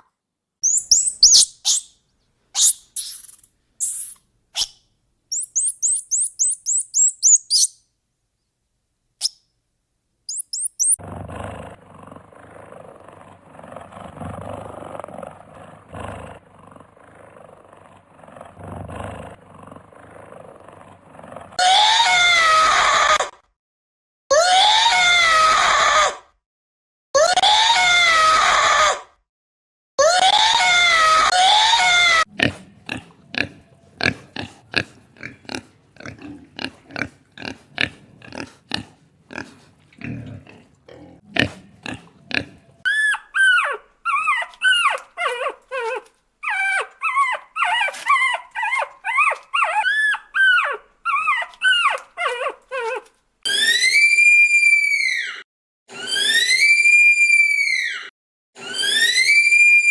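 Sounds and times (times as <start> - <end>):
high animal cries: 0.6 - 1.9, 2.6 - 4.7, 5.3 - 7.7, 10.3 - 11.0, 42.9 - 55.4
loud pitched animal calls: 0.6 - 1.9, 2.6 - 7.8, 10.3 - 11.0, 42.9 - 55.4
animal grunts: 10.8 - 21.6, 32.3 - 42.9.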